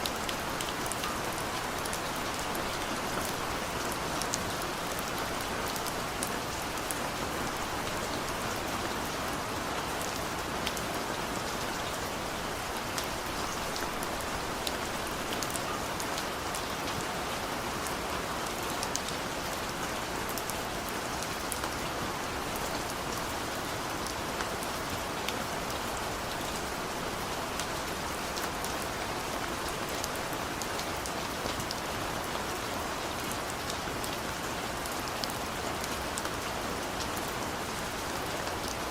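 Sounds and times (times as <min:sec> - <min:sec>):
raindrops pattering on surfaces: 0:00.0 - 0:38.9
steady rain falling: 0:00.0 - 0:38.9.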